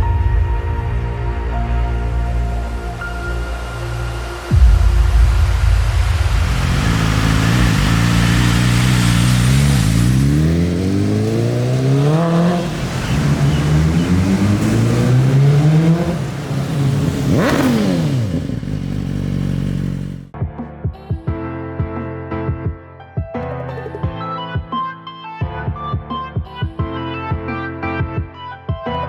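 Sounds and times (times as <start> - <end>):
motorcycle engine accelerating: 4.5 - 20.3
motorcycle passing by: 6.3 - 20.3.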